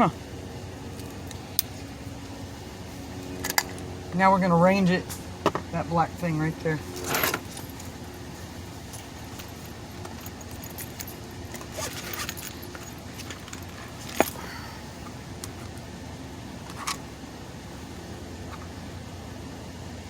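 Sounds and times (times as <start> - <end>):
background hum: 0.0 - 20.0
light metallic jingling: 0.8 - 15.6.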